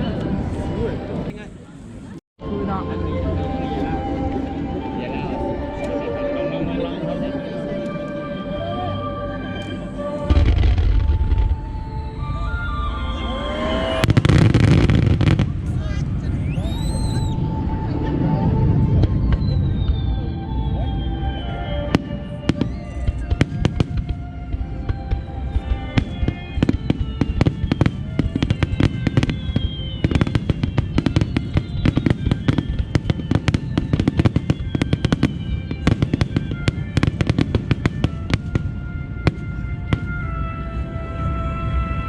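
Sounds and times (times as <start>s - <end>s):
fireworks bangs and crackles: 10.3s - 12.8s, 13.4s - 41.1s.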